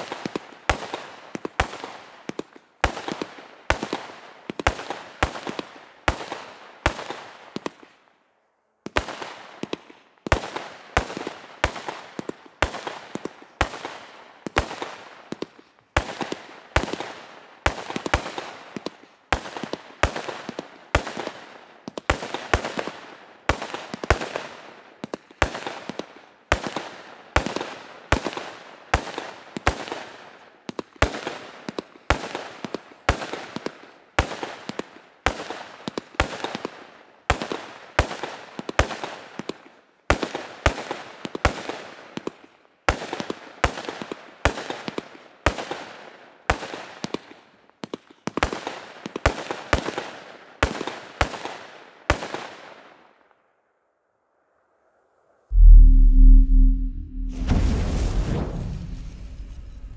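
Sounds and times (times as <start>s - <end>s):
fireworks bangs with crackle: 57.3s - 59.9s.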